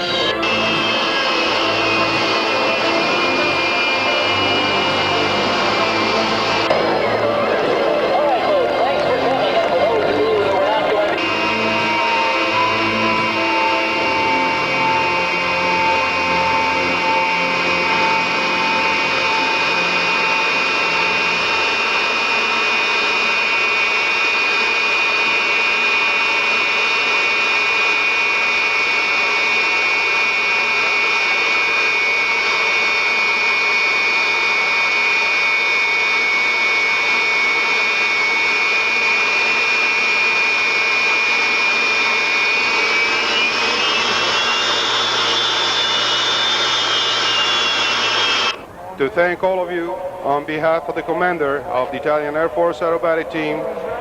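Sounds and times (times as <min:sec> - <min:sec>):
jet engine high whine: 0:00.0 - 0:54.0.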